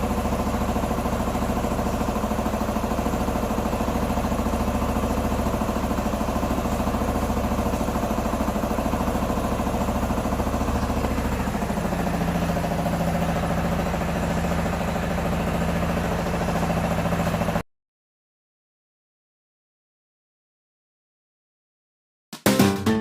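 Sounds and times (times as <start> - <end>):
motorcycle engine idling: 0.0 - 17.6.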